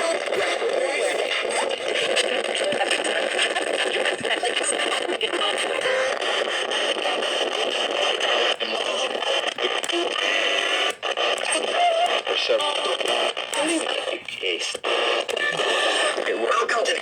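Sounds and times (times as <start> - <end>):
faint broadcast voice: 0.0 - 17.0
radio static hiss: 0.0 - 17.0.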